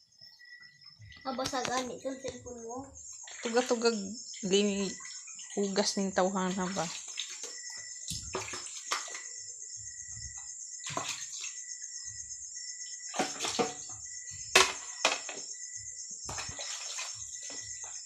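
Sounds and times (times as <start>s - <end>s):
dishes clinking in water: 6.4s - 9.3s, 13.2s - 14.0s, 16.3s - 17.7s.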